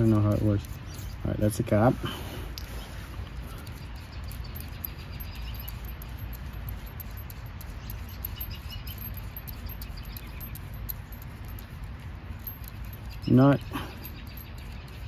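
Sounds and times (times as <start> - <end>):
high-pitched chirping: 3.6 - 15.0.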